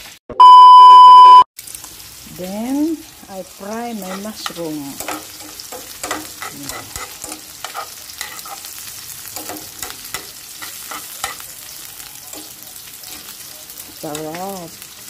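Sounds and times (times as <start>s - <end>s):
mushrooms sizzling in a pan: 1.6s - 15.0s
tongs clicking against pan: 4.0s - 14.6s.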